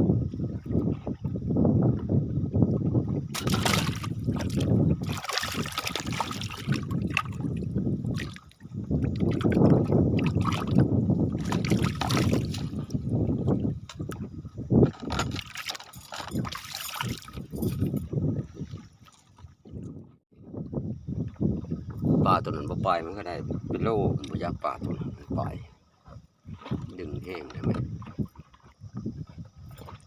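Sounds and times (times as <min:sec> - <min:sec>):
water sloshing around boat: 0:00.0 - 0:30.0
water splashes: 0:03.0 - 0:14.3, 0:14.9 - 0:19.8, 0:24.1 - 0:30.0.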